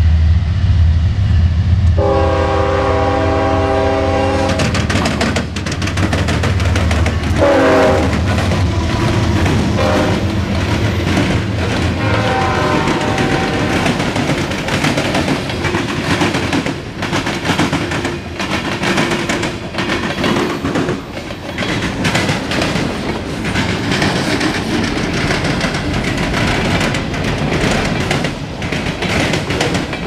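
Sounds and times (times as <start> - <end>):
freight cars rolling by: 4.5 - 30.0.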